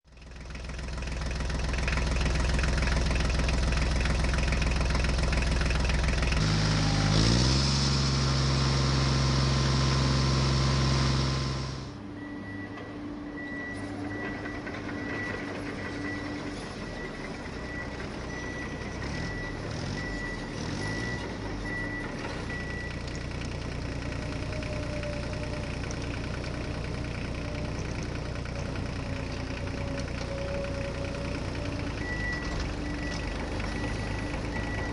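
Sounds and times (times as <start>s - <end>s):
high reversing beep: 10.8s - 23.2s, 30.3s - 34.9s
toy vehicle electronic engine hum: 13.4s - 34.9s.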